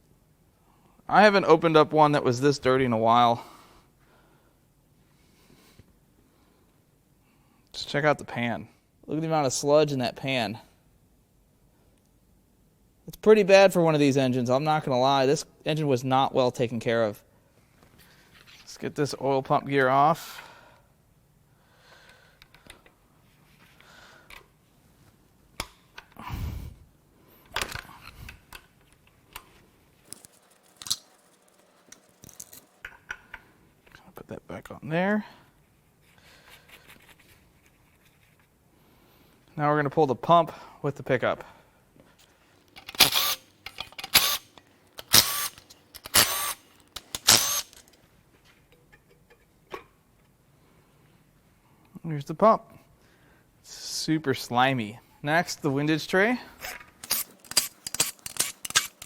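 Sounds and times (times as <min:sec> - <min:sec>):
hand tools clicking on metal: 0:30.1 - 0:32.9, 0:42.6 - 0:48.0, 0:57.0 - 0:59.0.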